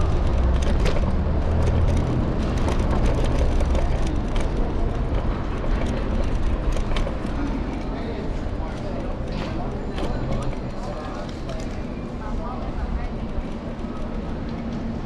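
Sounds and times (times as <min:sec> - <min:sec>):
clicks and rattles: 0:00.0 - 0:07.9
city street traffic: 0:00.0 - 0:15.0
wind and road rumble: 0:00.0 - 0:15.0.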